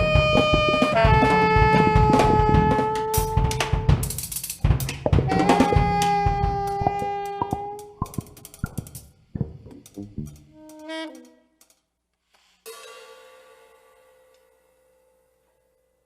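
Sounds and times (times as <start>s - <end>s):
wind instrument long notes: 0.0s - 4.0s, 5.2s - 8.4s
drum kit playing: 0.0s - 10.4s.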